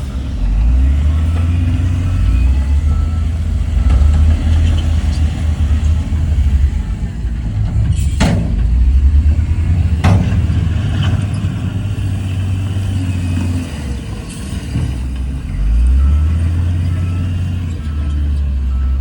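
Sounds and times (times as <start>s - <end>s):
diesel engine rumbling: 0.0s - 19.0s
sharp knocks: 7.7s - 8.8s, 10.0s - 10.8s.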